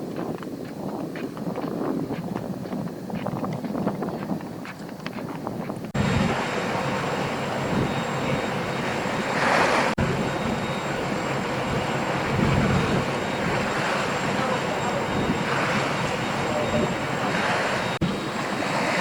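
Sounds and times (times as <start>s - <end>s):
rushing wind noise: 0.0s - 19.0s
engine droning: 5.9s - 19.0s.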